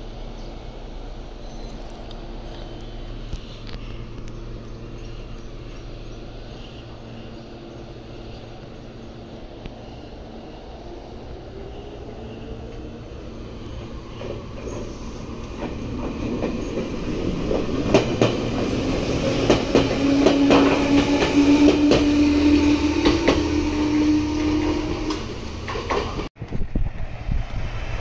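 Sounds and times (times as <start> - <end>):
train steady whine: 0.0 - 28.0
wheels clicking over rail joints: 24.9 - 26.3.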